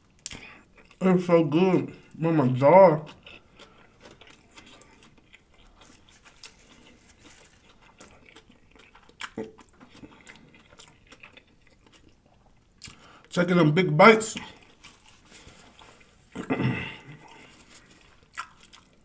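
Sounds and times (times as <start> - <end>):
person chewing food: 0.0 - 1.0, 1.6 - 13.3, 14.3 - 19.0
wet mouth clicks: 0.2 - 0.5, 9.2 - 9.6.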